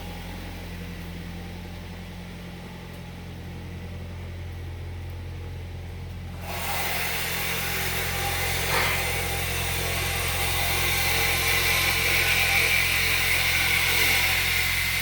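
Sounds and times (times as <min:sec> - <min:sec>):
car engine idling: 0:00.0 - 0:06.4
hissing whir: 0:06.4 - 0:15.0.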